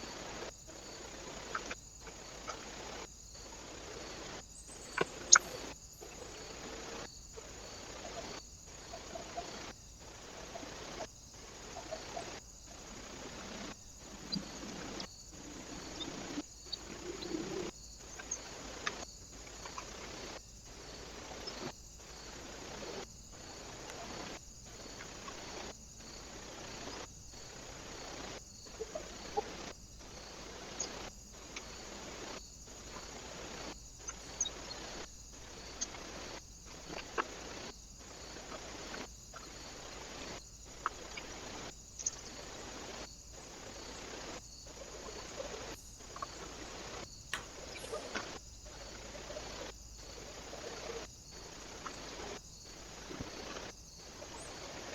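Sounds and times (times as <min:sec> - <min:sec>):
small birds chirping: 0:00.3 - 0:25.7, 0:26.3 - 0:54.9
outdoor hiss: 0:42.2 - 0:54.8
sharp clicks: 0:47.3 - 0:47.8.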